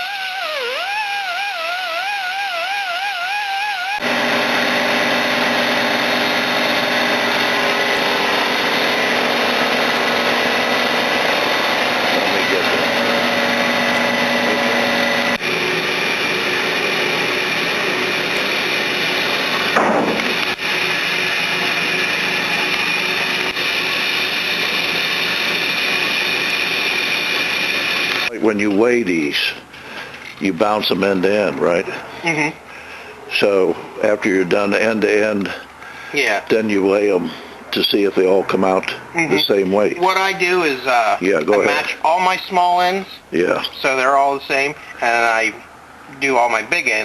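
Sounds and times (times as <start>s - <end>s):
power tool running: 0.0s - 28.3s.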